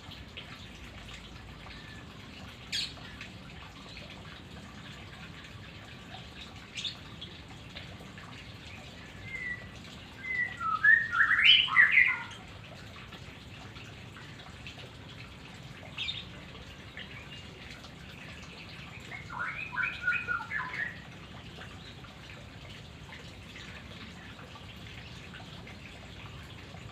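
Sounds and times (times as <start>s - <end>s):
bird singing whistled notes: 9.2s - 12.3s, 19.2s - 21.0s.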